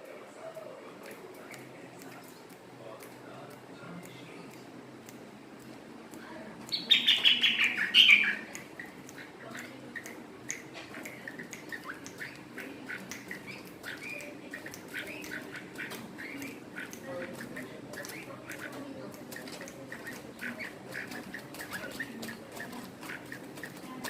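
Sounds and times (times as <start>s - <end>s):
birds chirping: 0.9s - 24.0s
birds squawking: 6.7s - 24.0s.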